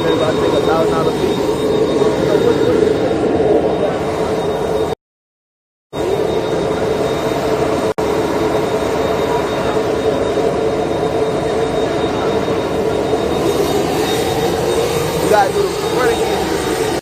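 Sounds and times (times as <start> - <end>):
aircraft cabin hum and air rush: 0.0 - 5.0, 6.0 - 17.0
thin high whine: 0.0 - 5.0, 5.9 - 17.0.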